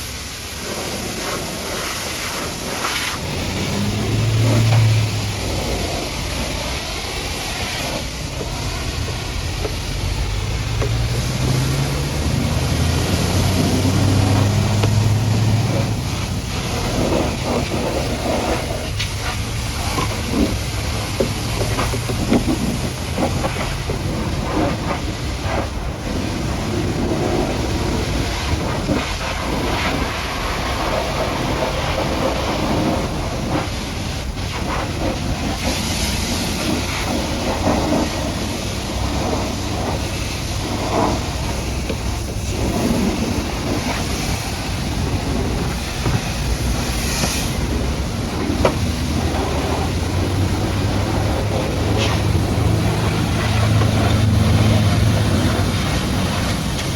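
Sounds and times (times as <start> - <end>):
constant low hum: 0.0 - 56.9
pressure washer spraying mud: 0.0 - 56.9.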